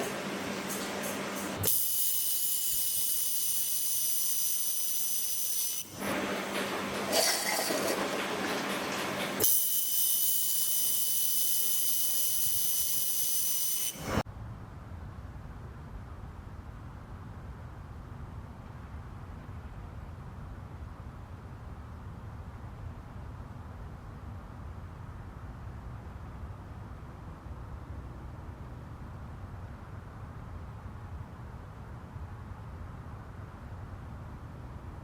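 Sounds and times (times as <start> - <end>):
laser welder hiss and whine: 0.0 - 6.0, 9.4 - 14.2.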